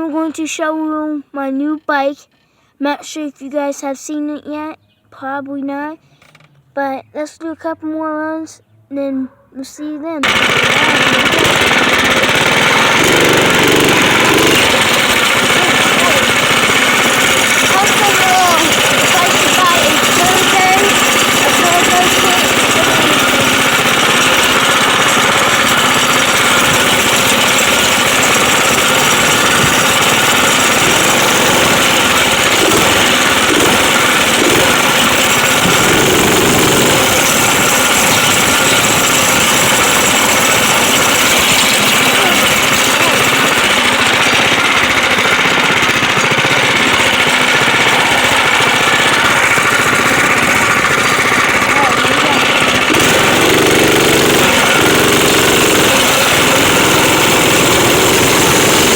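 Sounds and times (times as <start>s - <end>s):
dirt bike engine running: 10.2s - 58.9s.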